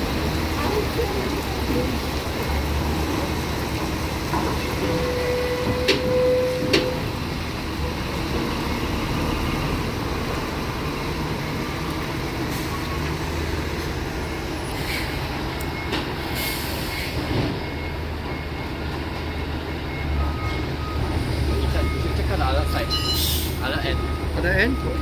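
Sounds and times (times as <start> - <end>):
heavy vehicle rumbling: 0.0 - 25.0.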